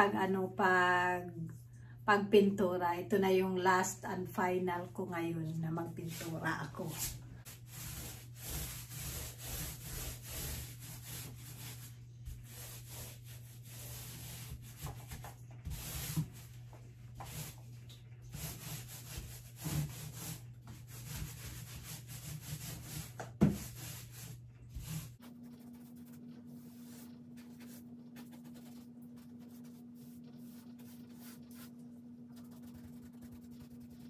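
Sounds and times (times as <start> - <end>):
low steady hum: 0.0 - 34.0
paintbrush strokes on wood: 18.3 - 34.0.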